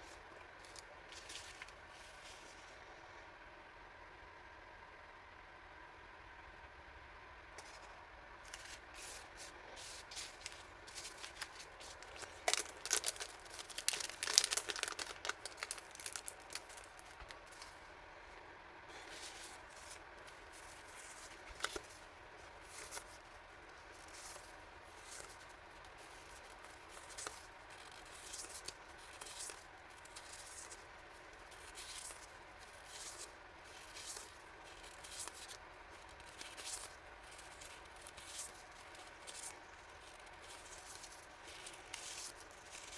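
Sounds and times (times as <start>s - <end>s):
packaging crinkling and tearing: 8.5s - 17.8s, 19.0s - 42.9s.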